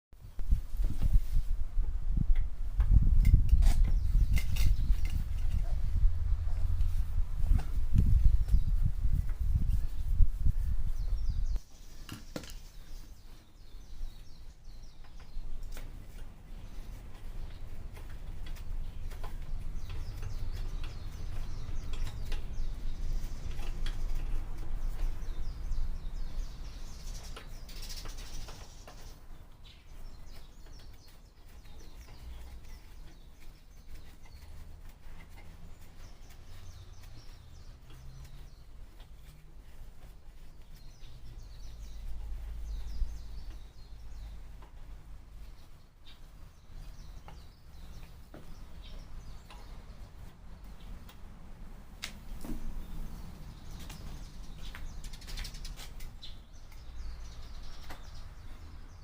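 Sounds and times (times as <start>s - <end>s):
steady low rumble: 0.3s - 11.6s
birds chirping: 2.1s - 59.0s.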